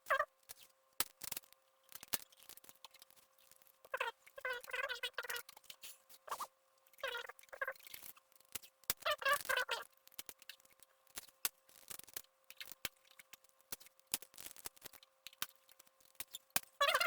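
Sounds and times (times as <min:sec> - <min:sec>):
small clicks: 0:10.1 - 0:16.7.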